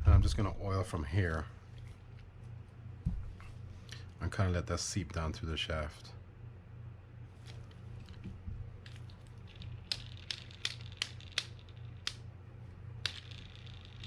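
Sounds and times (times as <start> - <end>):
steady low hum: 0.0 - 14.0
small sharp clicks of reel parts: 7.4 - 12.3, 13.0 - 14.0.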